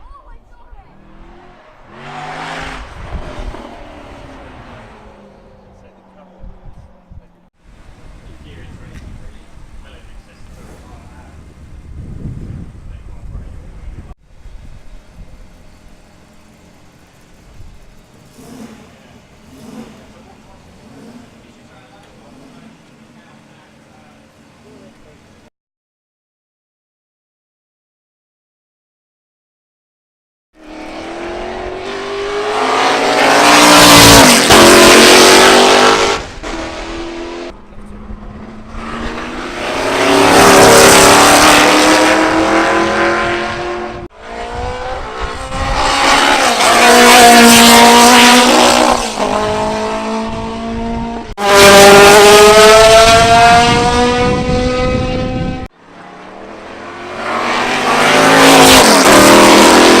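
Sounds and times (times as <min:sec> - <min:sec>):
racing cars passing at speed: 0:00.5 - 0:13.4, 0:16.3 - 0:25.0, 0:30.6 - 1:00.0.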